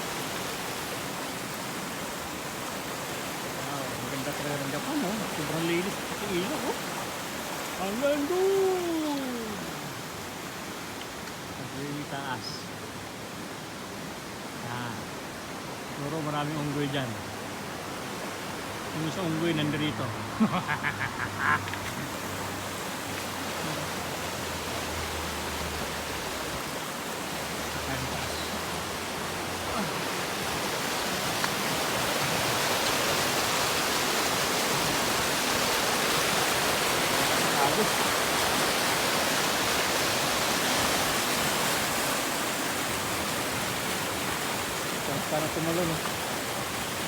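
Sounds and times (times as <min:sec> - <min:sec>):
river rushing over rocks: 0:00.0 - 0:47.0
brief voice: 0:08.2 - 0:09.9.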